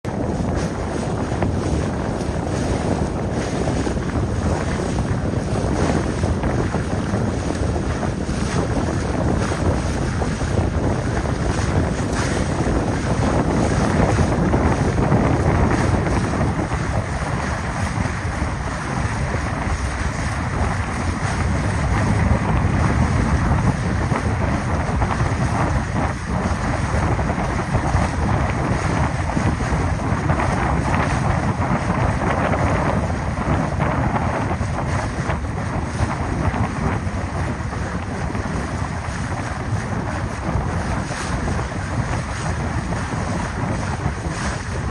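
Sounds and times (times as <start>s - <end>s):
water rushing: 0.0s - 44.9s
wind buffeting microphone: 0.0s - 44.9s.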